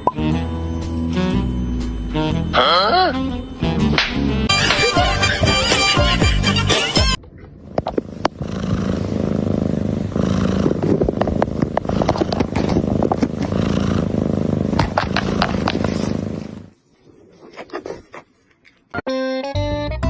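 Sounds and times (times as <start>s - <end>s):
cat purring: 7.9s - 18.2s.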